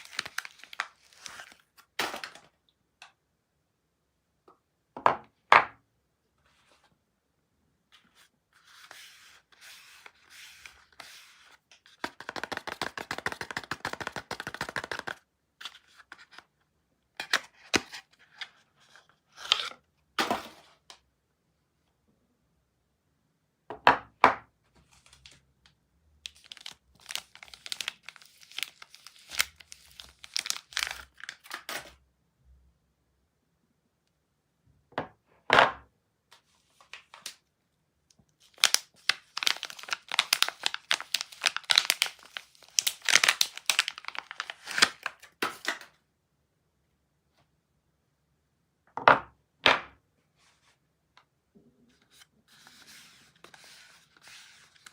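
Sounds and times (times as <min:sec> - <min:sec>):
wrapper tearing: 0:00.0 - 0:02.4, 0:26.2 - 0:31.9, 0:38.4 - 0:45.7
wrapper crinkling: 0:00.0 - 0:02.5, 0:26.2 - 0:31.9, 0:38.4 - 0:45.6.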